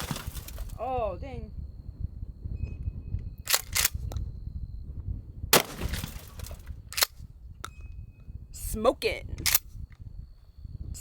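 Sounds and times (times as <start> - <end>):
glass breaking: 0.0 - 0.8, 5.6 - 6.6
shotgun firing: 5.5 - 6.2.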